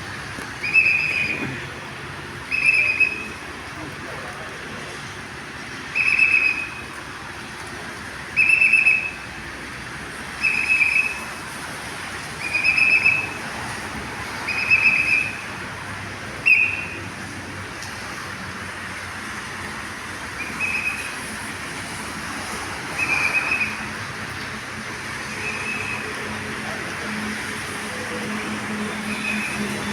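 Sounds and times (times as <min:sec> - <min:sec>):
whistle blasts: 0:00.6 - 0:01.4, 0:02.5 - 0:03.4, 0:06.0 - 0:06.8, 0:08.4 - 0:09.2, 0:10.4 - 0:11.3, 0:12.4 - 0:13.3, 0:14.5 - 0:15.4, 0:16.4 - 0:17.0, 0:25.4 - 0:26.1.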